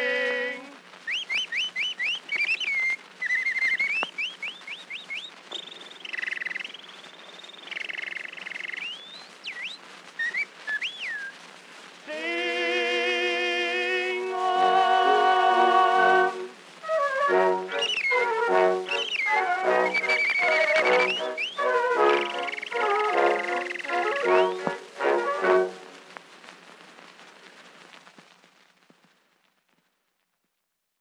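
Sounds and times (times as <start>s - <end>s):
recording surface hiss: 0.0s - 31.0s
whistled bird imitations: 1.1s - 11.4s, 16.9s - 25.8s
orchestra brass chords: 14.2s - 26.1s.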